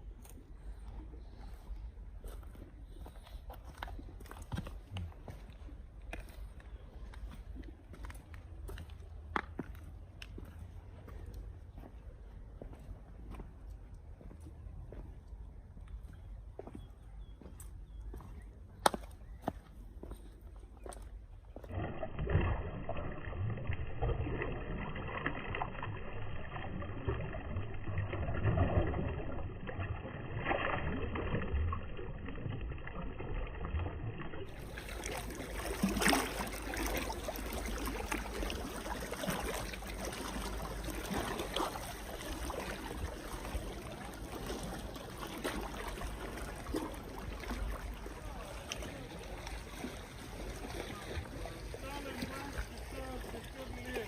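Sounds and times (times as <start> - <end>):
small waves lapping at shore: 34.4 - 54.0.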